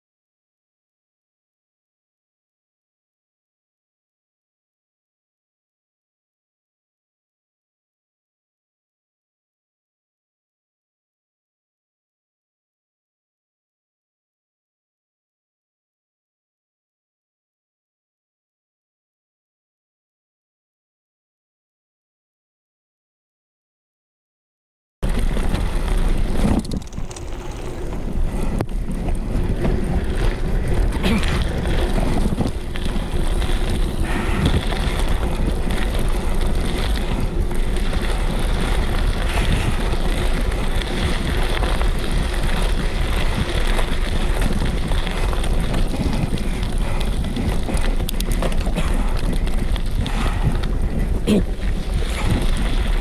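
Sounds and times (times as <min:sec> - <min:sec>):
bike knocks and rattles: 0:25.0 - 0:53.0
tyres rumbling on rough ground: 0:25.0 - 0:53.0
wind buffeting microphone: 0:25.0 - 0:53.0.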